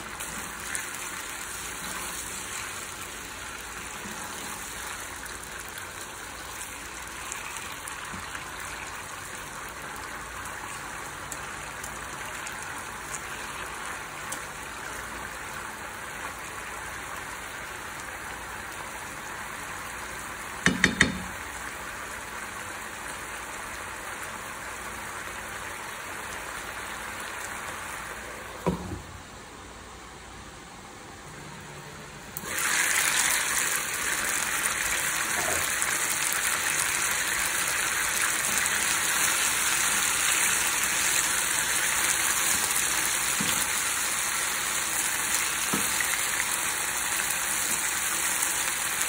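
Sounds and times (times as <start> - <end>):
chicken sizzling in frying pan: 0.0 - 28.5, 32.4 - 49.0
knocks against pan: 20.6 - 21.3.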